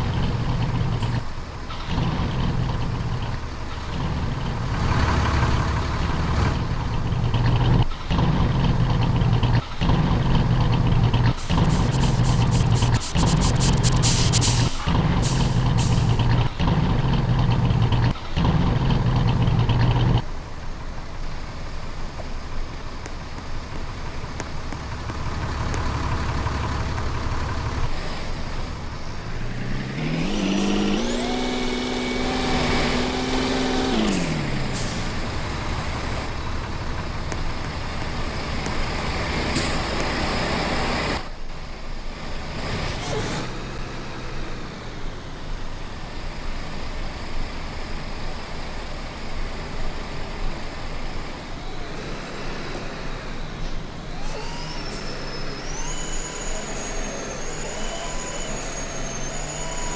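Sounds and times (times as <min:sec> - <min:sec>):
road noise: 0:00.0 - 0:59.9
truck engine running: 0:00.0 - 0:59.9
engine note rising in pitch: 0:04.0 - 0:20.2, 0:28.8 - 0:36.4, 0:51.6 - 0:59.9.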